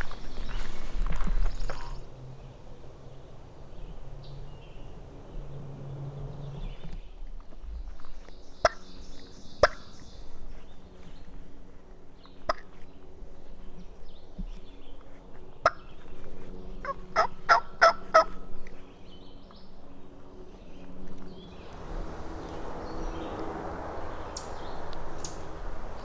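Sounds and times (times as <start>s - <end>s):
wild turkey gobbling: 16.8s - 18.4s.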